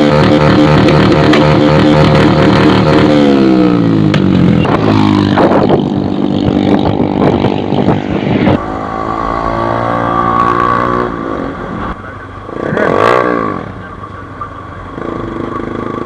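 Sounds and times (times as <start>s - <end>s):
exhaust cracks: 0.0s - 8.6s
motorcycle engine revving and idling: 0.0s - 16.0s.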